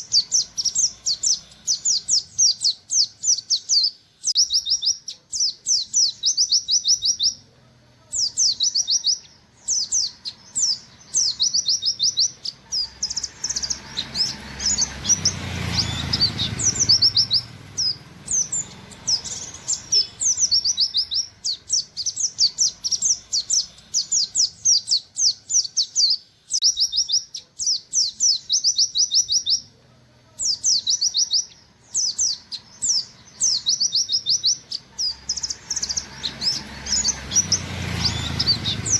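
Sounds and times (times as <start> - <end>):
bird singing sharp high notes: 8.2 - 29.7.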